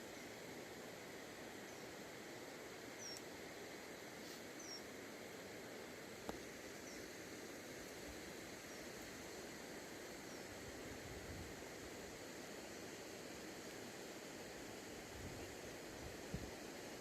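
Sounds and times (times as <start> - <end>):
faint outdoor background noise: 0.0 - 17.0.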